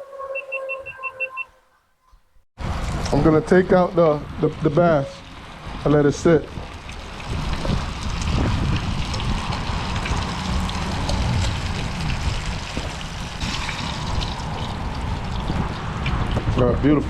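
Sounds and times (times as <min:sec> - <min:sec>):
oil sizzling in a frying pan: 0:05.2 - 0:15.8.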